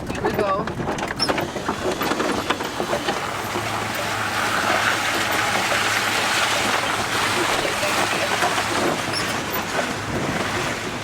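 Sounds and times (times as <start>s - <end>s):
knocks and rattles: 0.0s - 3.7s
road and engine noise: 0.0s - 11.0s.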